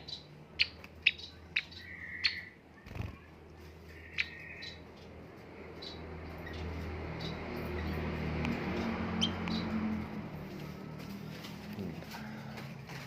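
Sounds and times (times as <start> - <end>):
buzzy bird calls: 0.0 - 5.1
finch chirping: 0.0 - 8.1, 8.7 - 10.0.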